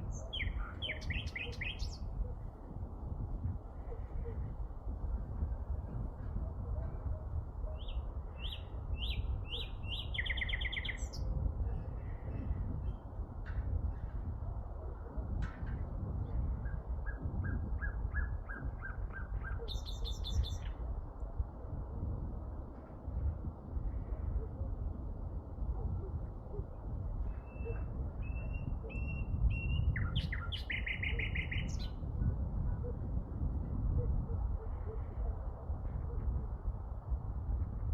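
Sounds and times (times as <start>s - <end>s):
songbird chirping and trilling: 0.0s - 2.2s, 7.7s - 11.3s, 17.0s - 20.8s, 27.3s - 32.1s.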